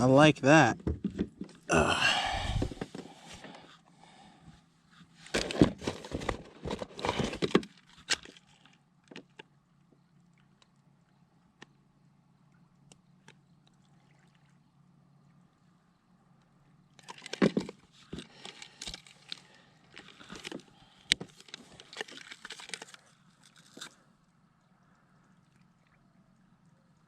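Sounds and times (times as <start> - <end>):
water splashing and sloshing: 13.6 - 15.0, 16.9 - 26.7.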